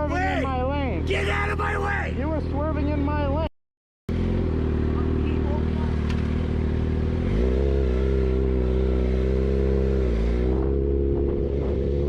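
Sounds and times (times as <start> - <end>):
vehicle engine running: 4.1 - 12.0.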